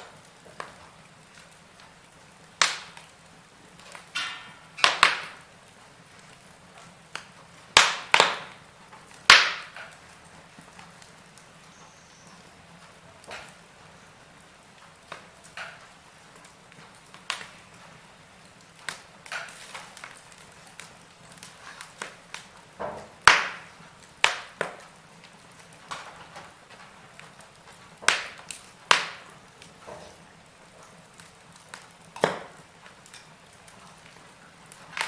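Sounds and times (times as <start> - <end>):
wood fire crackling: 0.0 - 35.0.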